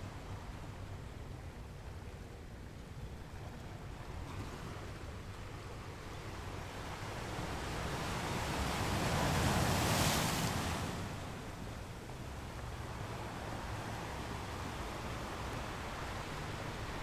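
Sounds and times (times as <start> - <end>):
sea waves rushing: 4.2 - 17.0.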